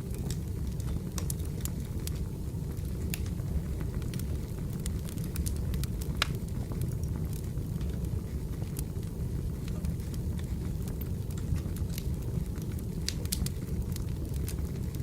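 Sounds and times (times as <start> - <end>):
wood fire rumbling and crackling: 0.0 - 15.0.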